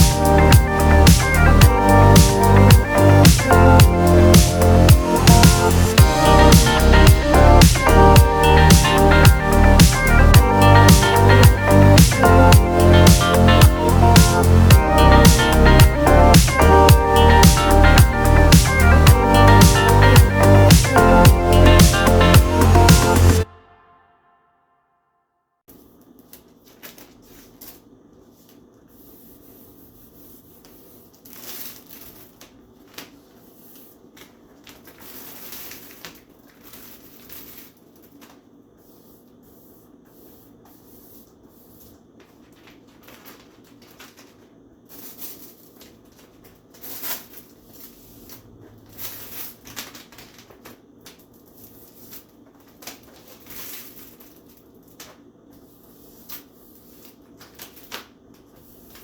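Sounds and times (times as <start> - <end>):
plastic sheet rustling and crinkling: 25.7 - 59.0.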